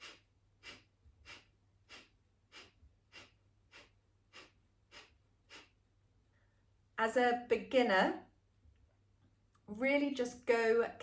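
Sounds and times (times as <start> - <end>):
woman's forceful nasal exhales: 0.0 - 5.8.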